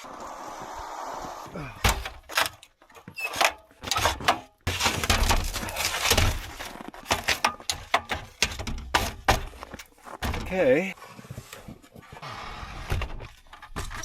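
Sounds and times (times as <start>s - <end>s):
ladder scraping on wood: 2.1s - 14.0s
ladder knocking and clattering: 3.4s - 10.7s.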